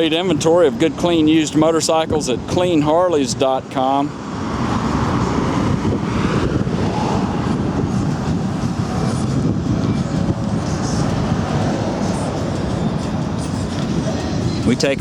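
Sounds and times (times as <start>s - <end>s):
motorcycle engine running: 4.6s - 15.0s.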